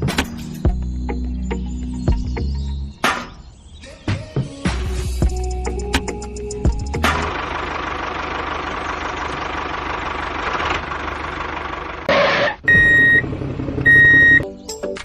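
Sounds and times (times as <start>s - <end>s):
high-pitched beep: 12.7s - 13.2s, 13.9s - 14.4s.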